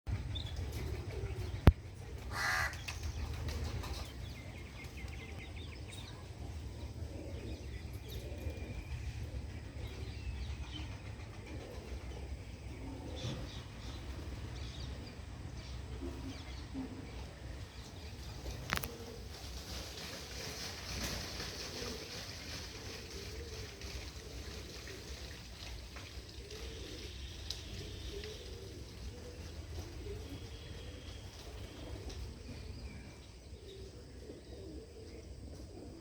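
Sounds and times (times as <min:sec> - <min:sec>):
birds chirping: 0:00.2 - 0:19.3
harsh caw-like bird call: 0:02.3 - 0:02.8.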